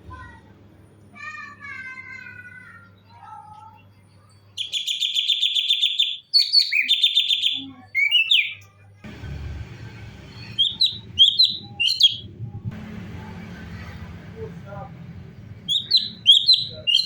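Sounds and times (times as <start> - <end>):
bird trilling and chirping: 4.6 - 8.7, 10.3 - 12.6, 15.5 - 17.0
low hum: 9.0 - 16.9.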